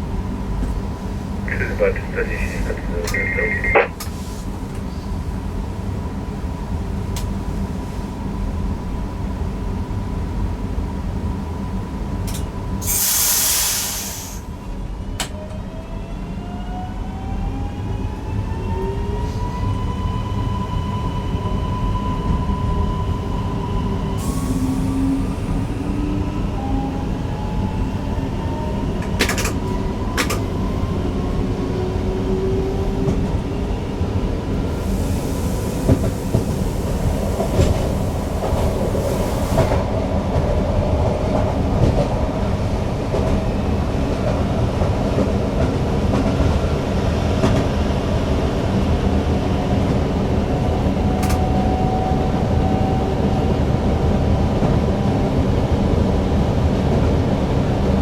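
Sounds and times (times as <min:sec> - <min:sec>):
train wheels rumbling on rail: 0:00.0 - 0:58.0
hiss: 0:12.8 - 0:14.5, 0:34.8 - 0:38.2, 0:38.9 - 0:39.8.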